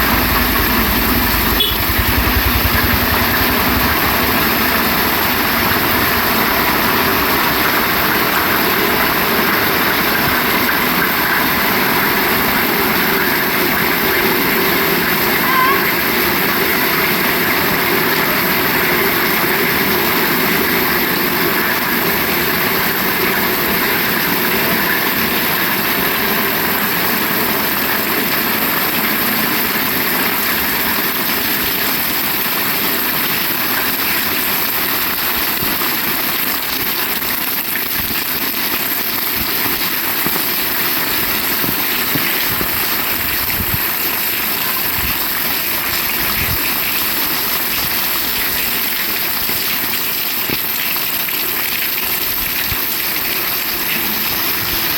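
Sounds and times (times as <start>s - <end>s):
low engine hum: 0.0s - 6.9s
heavy rain falling: 0.0s - 54.9s.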